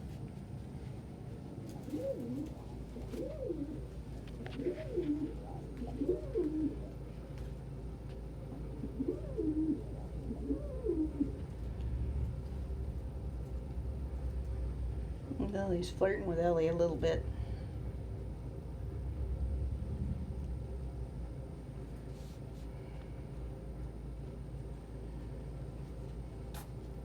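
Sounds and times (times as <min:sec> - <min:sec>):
pigeon cooing: 0:01.6 - 0:07.4, 0:08.4 - 0:11.7.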